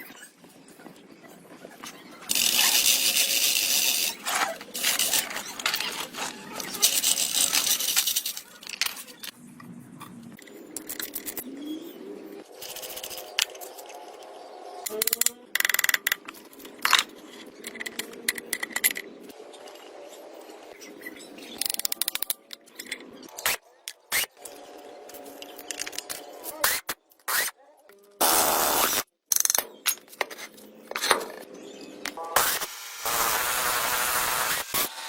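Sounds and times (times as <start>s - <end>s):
scraping metal parts: 2.3s - 9.3s.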